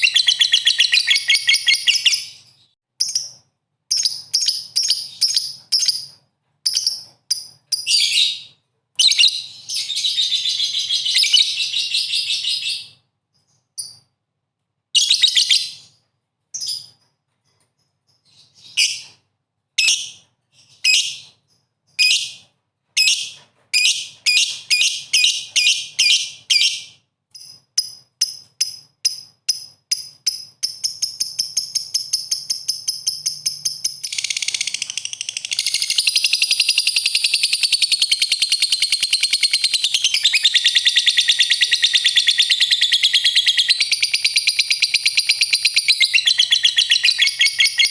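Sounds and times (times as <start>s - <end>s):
songbird chirping and trilling: 0.0s - 14.1s, 15.0s - 16.0s, 19.8s - 47.9s.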